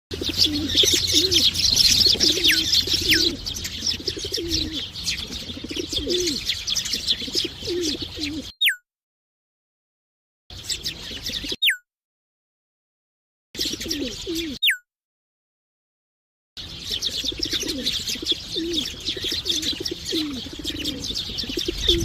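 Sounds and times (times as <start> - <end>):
sparrows chirping: 0.1 - 8.8, 10.5 - 11.8, 13.6 - 14.8, 16.6 - 22.0.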